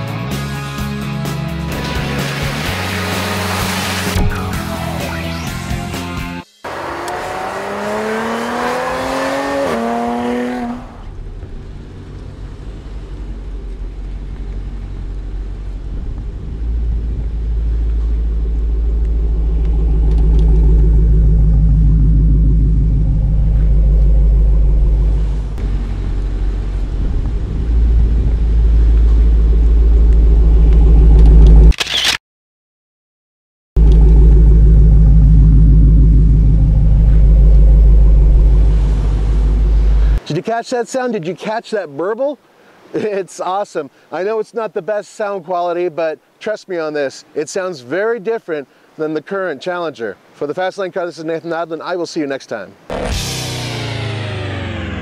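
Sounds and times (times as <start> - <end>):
car engine burbling and revving: 1.3 - 5.5, 6.6 - 32.1, 33.8 - 40.2, 52.9 - 55.0.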